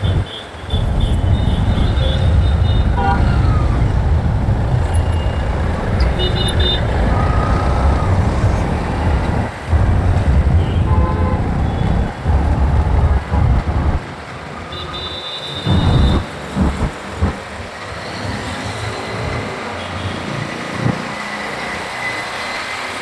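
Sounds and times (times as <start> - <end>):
wind buffeting microphone: 0.0 - 14.1, 15.7 - 17.7.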